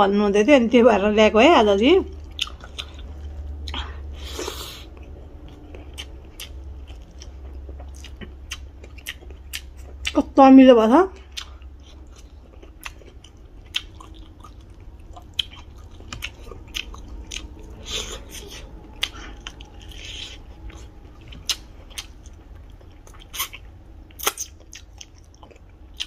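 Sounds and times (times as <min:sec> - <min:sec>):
low steady hum: 0:00.0 - 0:26.0
chewing and biting food: 0:02.1 - 0:10.2, 0:11.2 - 0:26.0.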